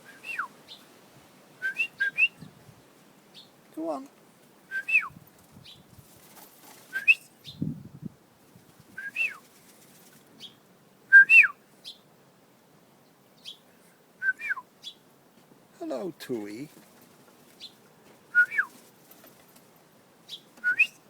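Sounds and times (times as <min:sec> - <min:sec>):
person whistling bird call: 0:04.7 - 0:05.2, 0:11.1 - 0:11.6, 0:14.2 - 0:14.6, 0:18.4 - 0:18.7, 0:20.6 - 0:21.0.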